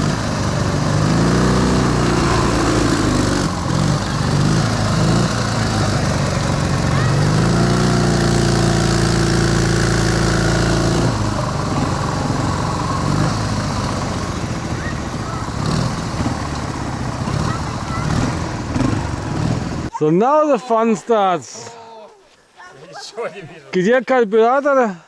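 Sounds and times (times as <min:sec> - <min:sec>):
motorcycle engine revving: 0:00.0 - 0:19.9.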